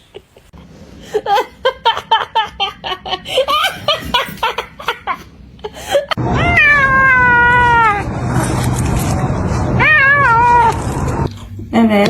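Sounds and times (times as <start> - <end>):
person laughing: 0.0 - 6.2
long cat meow: 6.4 - 8.0, 9.8 - 10.7.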